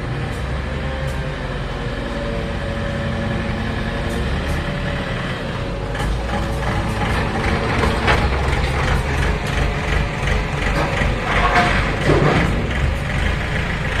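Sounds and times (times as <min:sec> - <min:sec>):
heavy engine running: 0:00.0 - 0:14.0
scrap iron clanking: 0:10.3 - 0:13.0.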